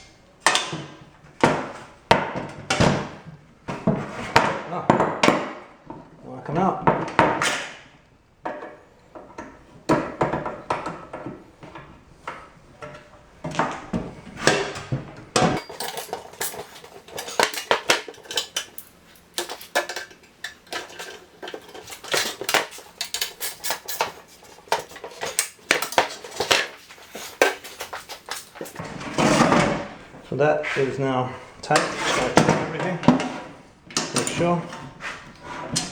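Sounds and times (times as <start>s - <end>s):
hand tools clinking on metal: 15.6s - 28.8s.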